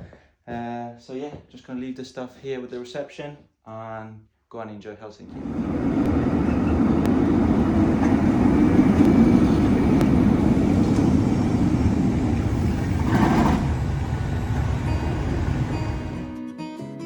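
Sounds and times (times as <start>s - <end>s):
road traffic rumble: 5.3s - 16.3s.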